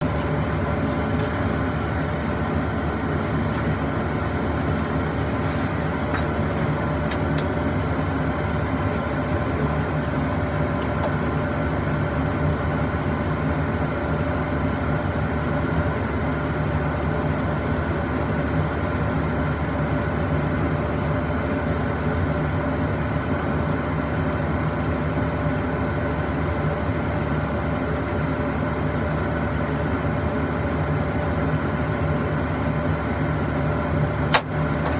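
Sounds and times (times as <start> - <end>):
heavy engine droning: 0.0 - 7.5.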